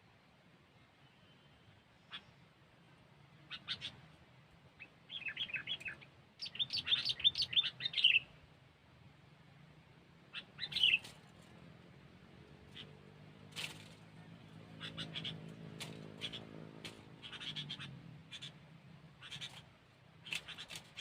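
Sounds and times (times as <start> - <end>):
bird chirping: 1.0 - 2.5, 3.4 - 4.2, 4.8 - 8.4, 10.3 - 11.6, 12.5 - 21.0.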